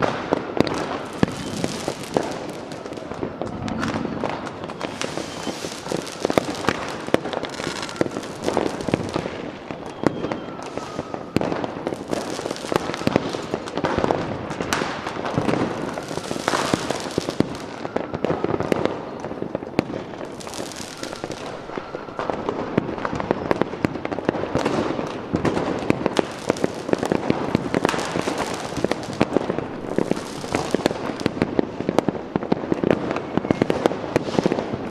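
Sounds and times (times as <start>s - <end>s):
faint fireworks whistles: 0.0s - 34.9s
fireworks crackling and popping: 0.0s - 34.9s
fireworks hiss: 1.0s - 2.9s, 4.8s - 9.4s, 26.1s - 31.4s.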